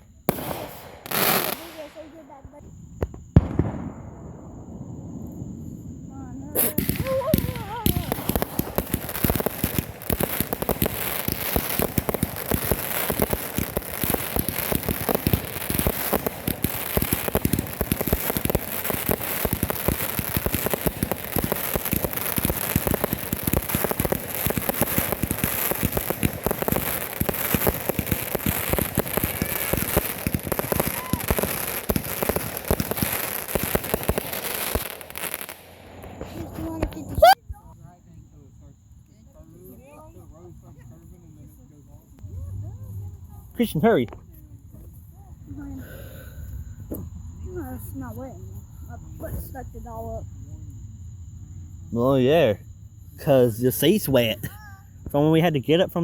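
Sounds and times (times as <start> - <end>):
steady high hiss: 0.0 - 2.6, 6.1 - 37.4, 51.4 - 56.0
fireworks crackling: 0.0 - 37.7, 53.2 - 56.0.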